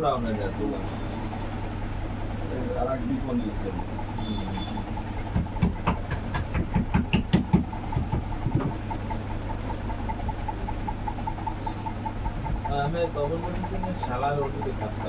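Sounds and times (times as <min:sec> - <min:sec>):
sharp knocks: 0:05.3 - 0:08.8
faint regular ticking: 0:08.9 - 0:15.0.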